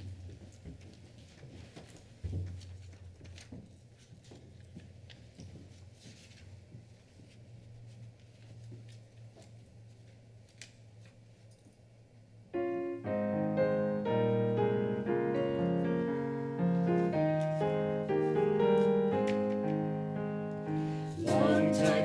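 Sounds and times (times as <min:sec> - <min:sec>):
piano playing chords and melody: 0:12.5 - 0:22.0.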